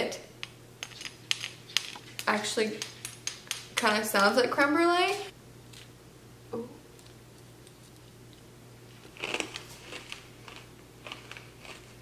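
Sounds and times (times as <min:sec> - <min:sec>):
chewing crunchy sugar crust: 0:07.0 - 0:12.0.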